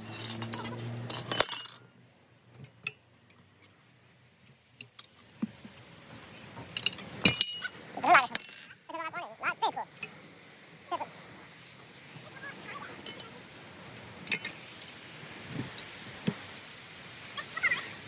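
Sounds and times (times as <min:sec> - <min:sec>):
metal parts clinking: 0:00.0 - 0:01.8, 0:06.2 - 0:08.8, 0:13.0 - 0:15.0.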